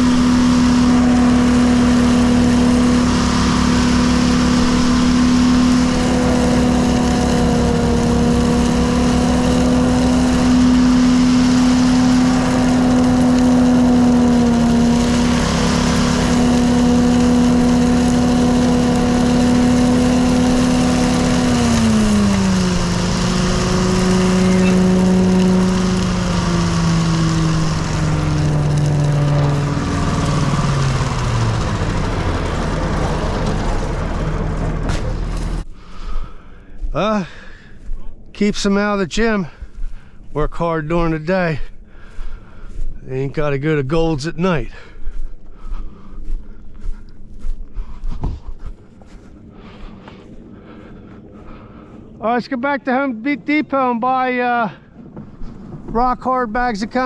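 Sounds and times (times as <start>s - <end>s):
engine running at high speed: 0.0s - 57.0s.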